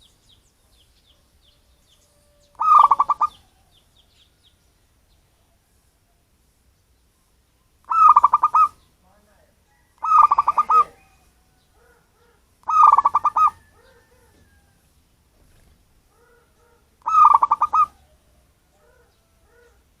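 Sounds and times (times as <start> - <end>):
dove cooing: 2.2 - 3.7, 7.9 - 8.8, 9.7 - 14.7, 15.4 - 19.8.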